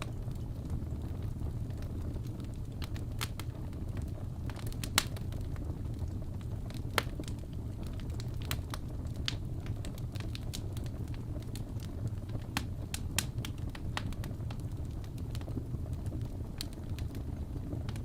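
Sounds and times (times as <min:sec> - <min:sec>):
fire crackling in fireplace: 0:00.0 - 0:18.0.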